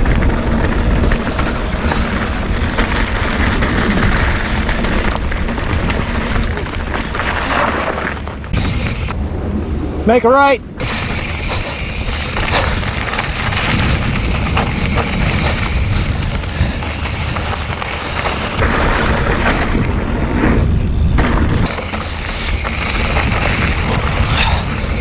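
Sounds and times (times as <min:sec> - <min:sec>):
bike rolling on dirt trail: 0:00.0 - 0:25.0
wind rumbling on microphone: 0:00.0 - 0:25.0.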